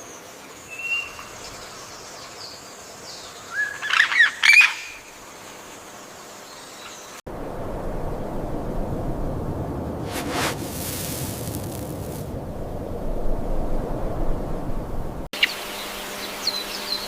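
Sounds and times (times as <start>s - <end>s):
faint hiss: 10.0s - 12.4s.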